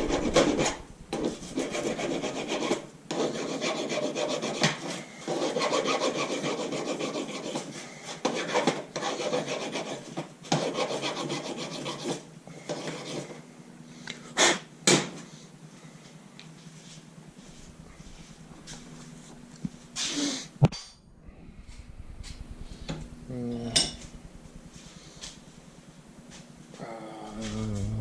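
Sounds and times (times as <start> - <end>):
tool rasping scrape: 0.0 - 13.4.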